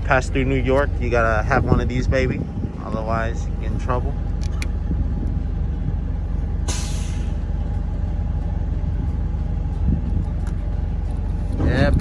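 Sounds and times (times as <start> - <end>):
diesel truck idling: 0.0 - 12.0
air brake hiss: 6.7 - 7.4.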